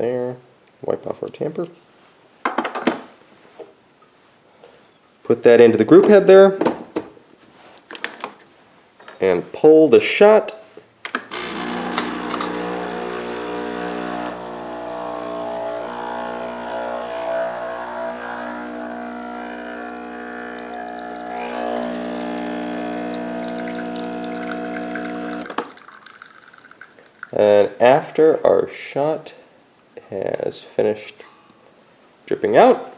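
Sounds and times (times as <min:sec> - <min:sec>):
espresso machine pump humming: 0:11.3 - 0:26.8.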